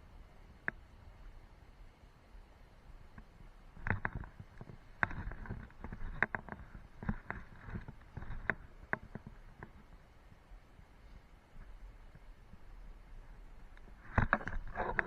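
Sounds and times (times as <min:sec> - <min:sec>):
sharp clicks and knocks: 0:03.2 - 0:10.0, 0:13.8 - 0:15.0.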